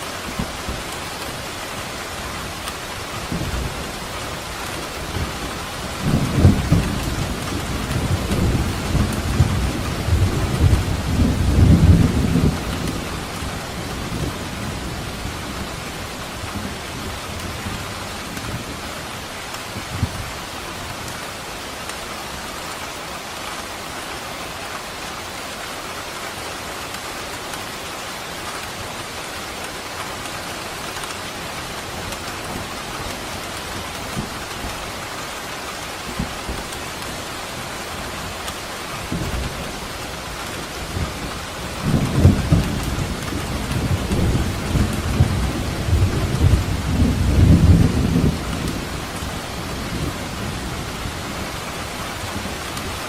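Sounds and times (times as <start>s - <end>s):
rain falling: 0.0s - 53.0s
low rumble of thunder: 3.2s - 18.9s, 39.0s - 53.0s.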